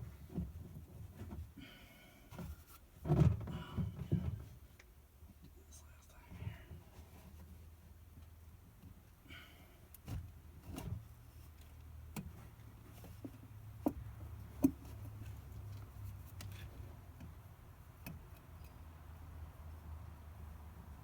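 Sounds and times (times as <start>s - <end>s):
faint low hum: 5.3s - 8.3s.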